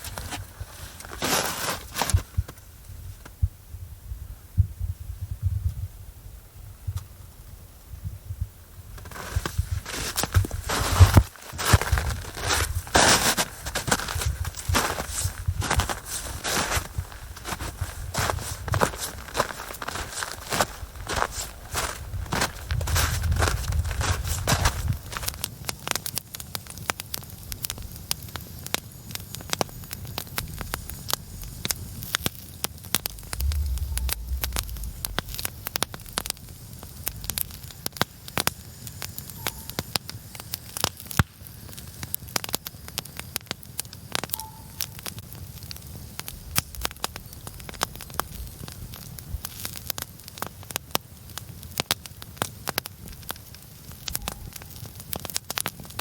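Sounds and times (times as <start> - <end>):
campfire crackling and popping: 0.0 - 3.6, 7.9 - 56.0
low rumble: 33.0 - 38.3.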